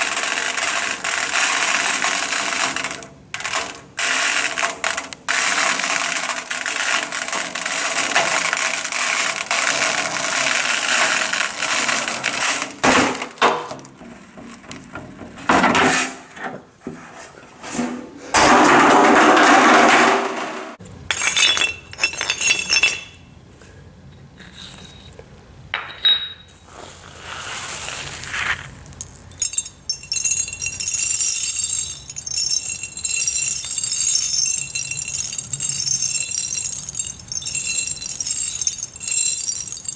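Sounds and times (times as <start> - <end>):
small pebbles rattling and clinking: 0.0 - 12.8, 21.1 - 23.2, 28.6 - 39.9.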